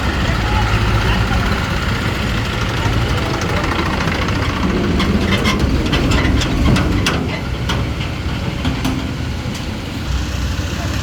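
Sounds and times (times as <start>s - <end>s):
diesel tractor engine running: 0.0s - 11.0s
sharp clicks and rattles: 1.7s - 9.7s.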